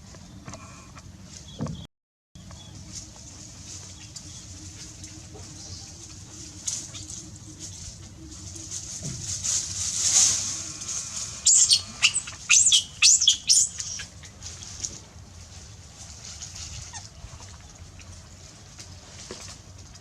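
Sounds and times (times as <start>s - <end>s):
animal squealing cries: 11.4s - 14.1s.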